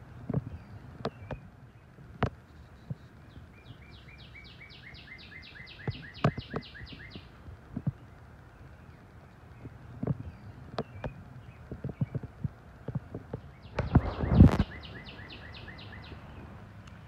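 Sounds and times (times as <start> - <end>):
songbird trilling: 2.5 - 7.4, 13.4 - 16.5.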